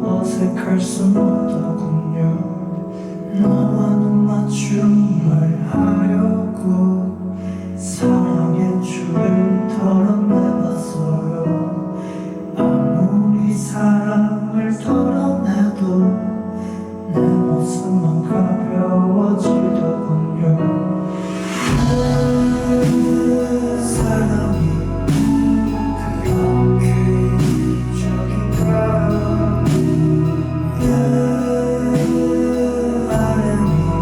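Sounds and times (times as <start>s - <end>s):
live band playing slow song: 21.0s - 34.0s.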